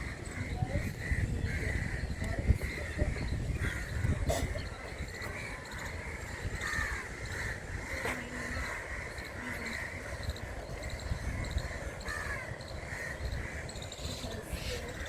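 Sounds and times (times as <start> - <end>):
birds calling and chirping: 0.0 - 15.0.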